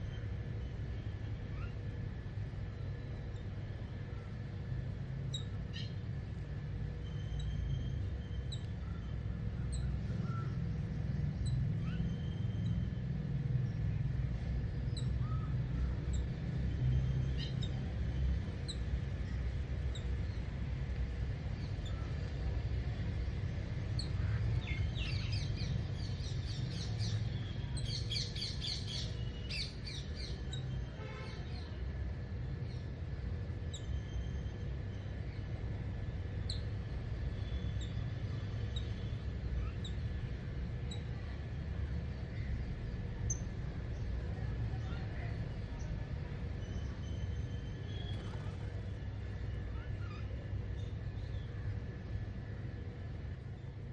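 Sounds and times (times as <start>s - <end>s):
small birds chirping: 0.0s - 13.0s, 13.6s - 53.9s
steady low rumble: 0.0s - 30.8s, 31.8s - 33.9s, 34.6s - 53.9s.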